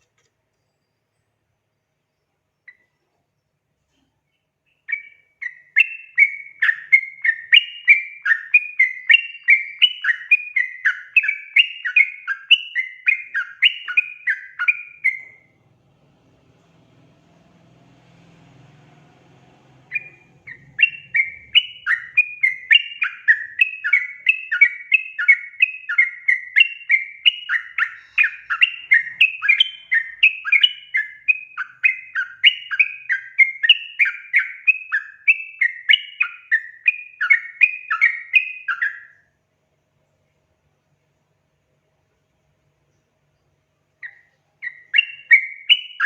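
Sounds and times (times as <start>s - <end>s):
bird chattering song: 4.3s - 15.6s, 19.6s - 39.2s, 42.9s - 46.0s.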